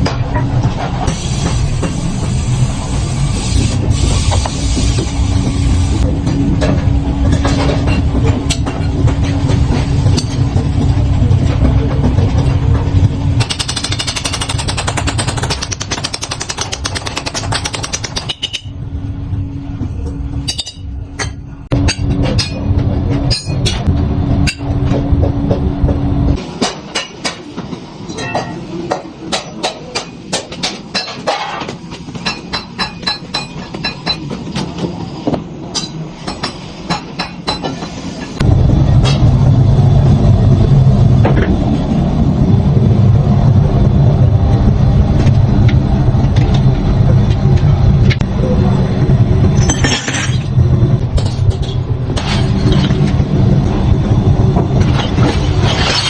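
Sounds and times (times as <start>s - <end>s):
workshop machinery humming: 0.0s - 56.0s
hammering metal: 32.2s - 34.3s.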